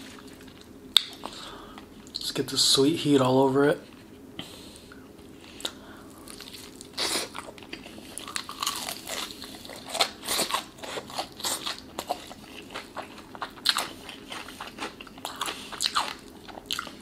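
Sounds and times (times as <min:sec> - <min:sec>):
biting and chewing crunchy chicken: 0:05.7 - 0:17.0.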